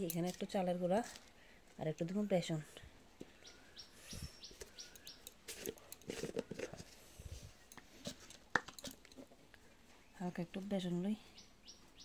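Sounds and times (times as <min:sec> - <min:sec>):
bird chirping: 0:03.2 - 0:05.6, 0:09.9 - 0:12.0.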